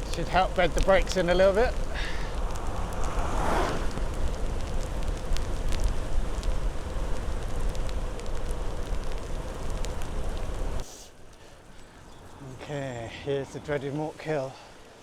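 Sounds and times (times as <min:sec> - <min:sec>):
wind buffeting microphone: 0:00.0 - 0:10.8
clicks of spray and raindrops: 0:00.0 - 0:12.9
tyres hissing on wet road: 0:00.0 - 0:15.0.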